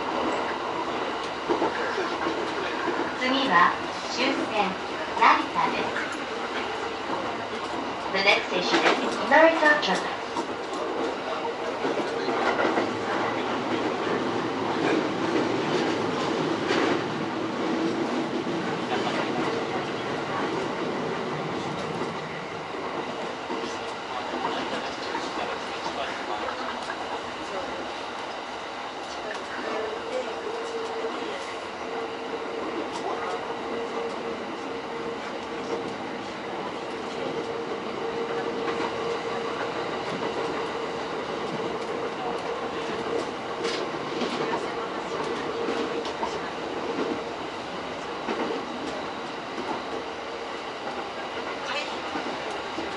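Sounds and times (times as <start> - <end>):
train wheels rolling on rails: 0.0 - 52.9
rail joint clicks: 5.2 - 17.1, 29.0 - 47.4.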